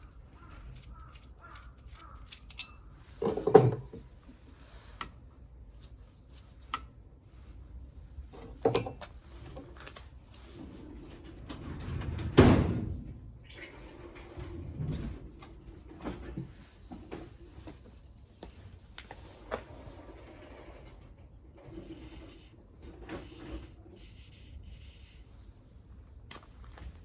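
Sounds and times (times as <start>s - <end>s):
metal tools clanking and knocking: 2.2s - 4.1s, 8.4s - 9.2s.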